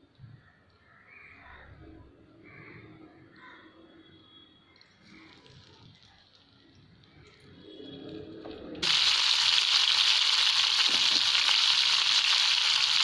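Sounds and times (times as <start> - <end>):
food sizzling in oil: 8.8 - 13.0.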